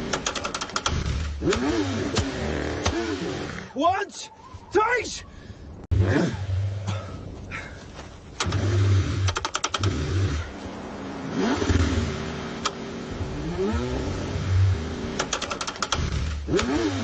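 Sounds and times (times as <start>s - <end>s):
rapid clicking: 0.0s - 3.0s, 8.4s - 10.0s, 15.2s - 16.8s
car engine cranking: 0.0s - 3.7s, 8.3s - 10.6s, 11.2s - 17.0s.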